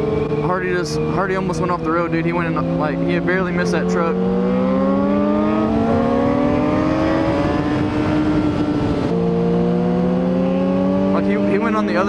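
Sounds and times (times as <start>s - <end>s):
sport bike engine accelerating: 0.0s - 12.0s.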